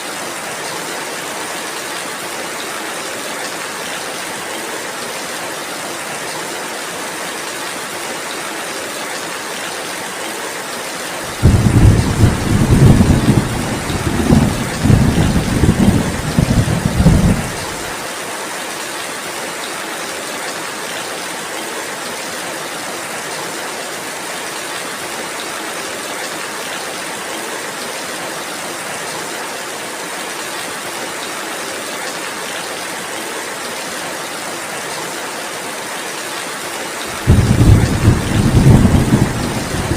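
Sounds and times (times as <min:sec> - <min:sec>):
steady rainfall: 0:00.0 - 0:39.9
deep rumble of thunder: 0:11.3 - 0:17.9, 0:37.2 - 0:39.9.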